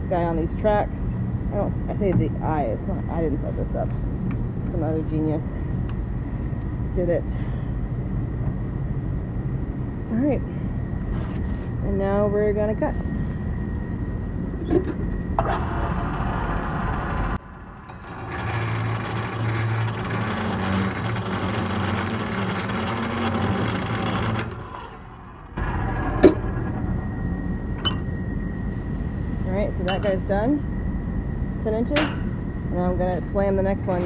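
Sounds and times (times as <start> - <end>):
metal clank: 27.8 - 28.2, 29.8 - 30.4, 31.9 - 32.5.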